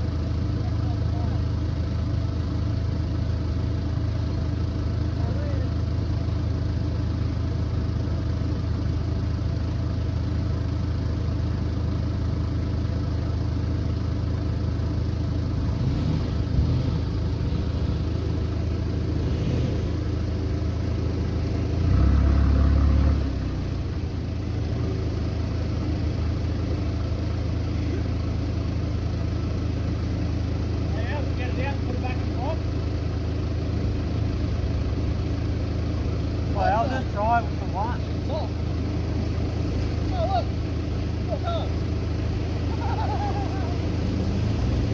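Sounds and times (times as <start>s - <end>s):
vehicle engine humming: 0.0s - 44.9s.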